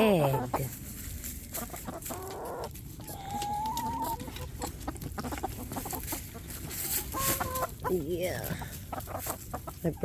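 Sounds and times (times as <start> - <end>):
hens clucking: 0.0 - 10.0
scratching and rustling: 0.4 - 10.0.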